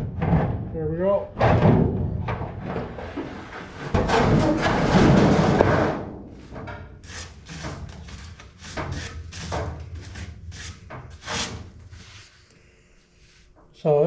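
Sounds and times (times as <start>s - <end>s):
metal scrapes and knocks: 1.4s - 12.4s.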